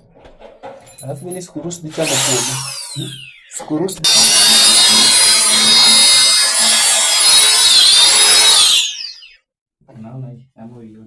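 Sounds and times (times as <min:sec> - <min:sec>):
electric drill whining: 0:01.9 - 0:09.4.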